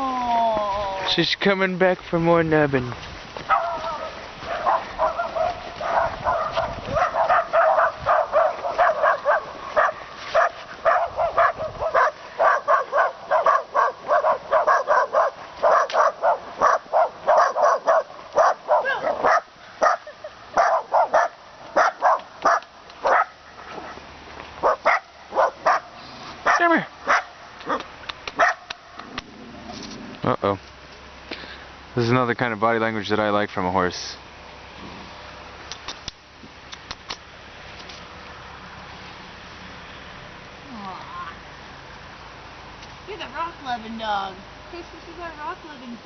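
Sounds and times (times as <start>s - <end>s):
dog barking: 3.5s - 23.4s, 24.6s - 28.7s.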